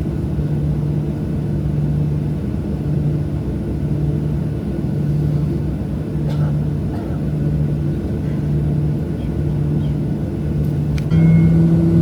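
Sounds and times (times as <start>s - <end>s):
airliner cabin rumble: 0.0s - 12.0s
higher steady tone: 11.1s - 12.0s.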